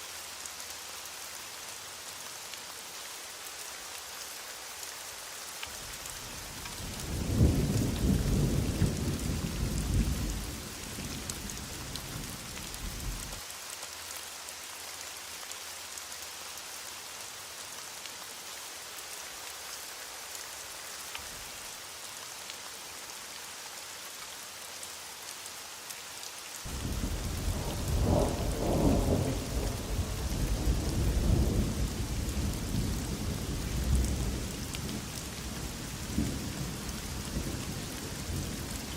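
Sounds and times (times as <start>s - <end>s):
heavy rain falling: 0.0s - 38.9s
thunder rumbling: 26.7s - 34.4s.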